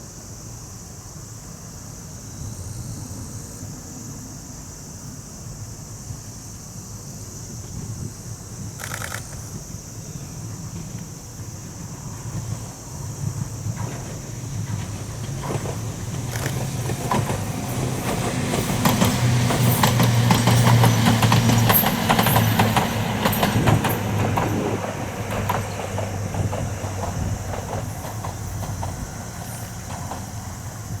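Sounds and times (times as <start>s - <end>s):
electric train passing: 8.6s - 31.0s
wheels clicking over rail joints: 8.8s - 9.6s, 13.4s - 31.0s.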